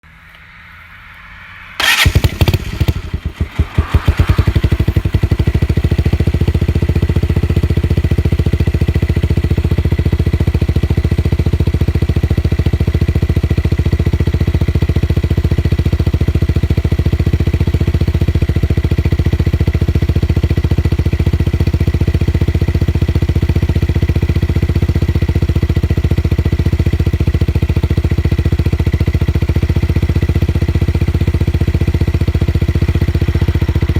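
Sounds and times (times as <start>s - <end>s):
motorcycle engine blips: 0.1s - 8.6s
motorcycle engine starting and idling: 0.1s - 33.9s.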